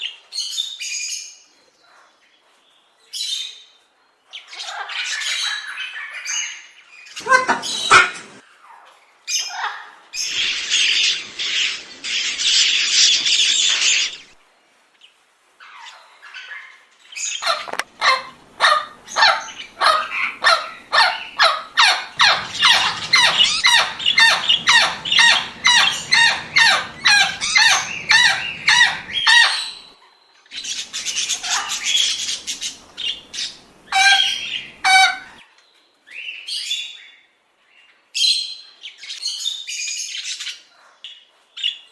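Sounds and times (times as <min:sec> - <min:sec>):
lorikeets screeching: 0:17.4 - 0:29.9, 0:30.6 - 0:35.4.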